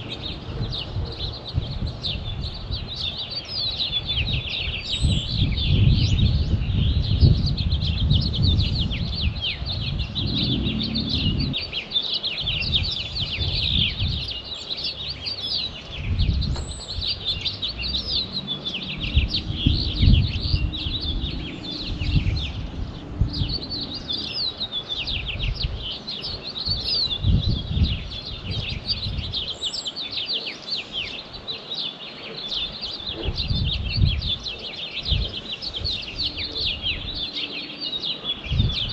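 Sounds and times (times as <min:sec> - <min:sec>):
songbirds chirping and singing: 0:00.0 - 0:38.9
low rumbling: 0:08.2 - 0:11.6, 0:17.6 - 0:24.4.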